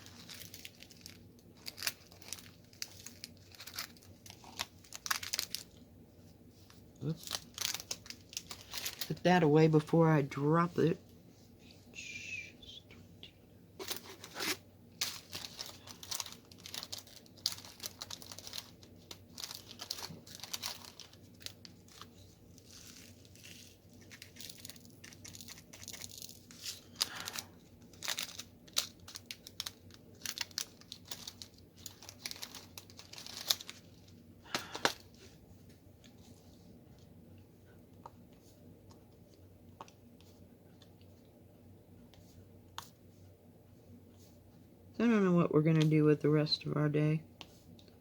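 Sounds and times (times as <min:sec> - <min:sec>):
thin plastic crinkling: 0:00.0 - 0:09.7, 0:13.8 - 0:37.1.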